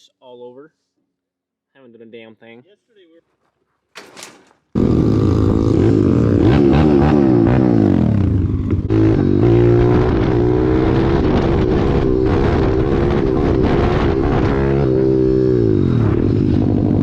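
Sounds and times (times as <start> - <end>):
pit bike engine revving: 4.7 - 17.0.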